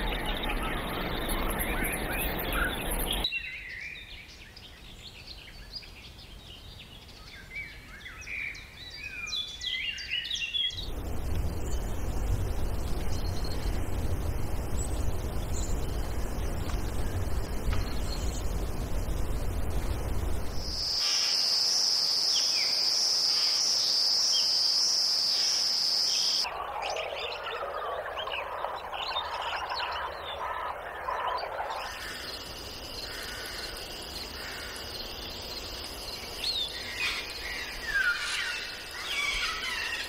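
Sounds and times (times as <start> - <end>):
dense chorus of chirps and calls: 0.0 - 4.2, 19.9 - 40.0
bird chirps: 0.0 - 5.9, 22.4 - 40.0
low rumble: 10.8 - 20.8.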